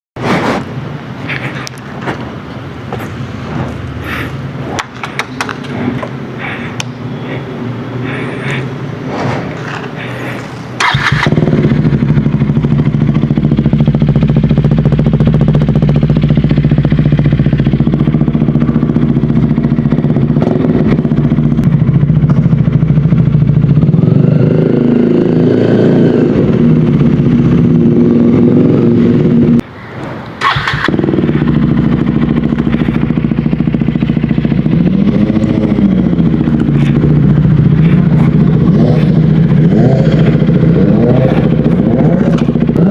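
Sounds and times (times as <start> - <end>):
engine sharp burst: 8.0 - 14.0
motorcycle engine idling: 10.8 - 25.3, 30.4 - 42.9.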